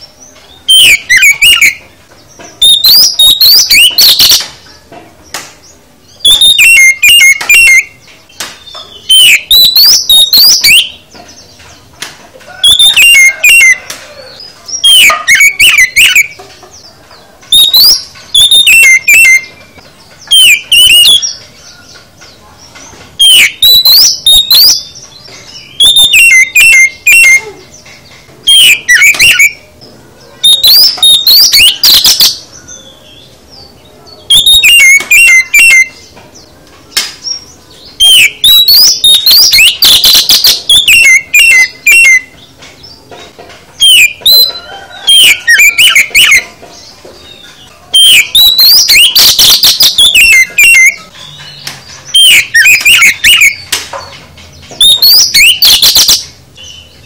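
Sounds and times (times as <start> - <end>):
songbird whistling and chirping: 0.0 - 43.2, 43.8 - 57.0.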